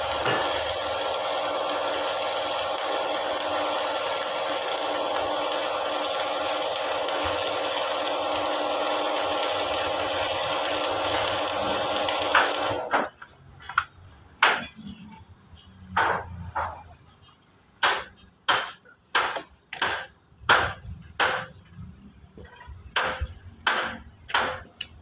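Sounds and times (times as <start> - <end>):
hammer striking steel: 17.8 - 21.5, 23.0 - 24.7.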